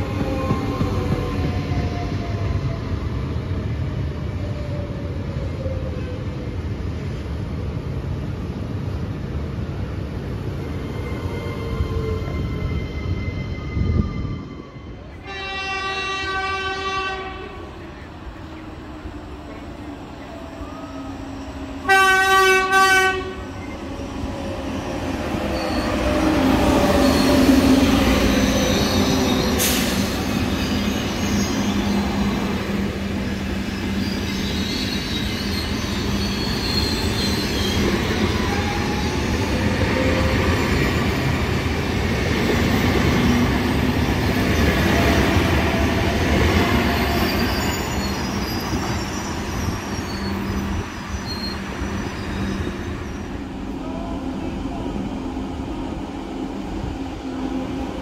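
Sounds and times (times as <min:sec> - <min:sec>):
train horn blasts: 0:15.2 - 0:17.6, 0:21.8 - 0:23.4
high wheel squeals: 0:25.4 - 0:32.6, 0:33.7 - 0:39.3, 0:46.8 - 0:53.4.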